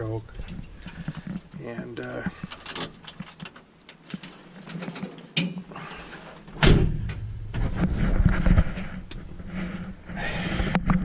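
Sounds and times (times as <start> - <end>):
truck engine rumbling: 6.5 - 10.2.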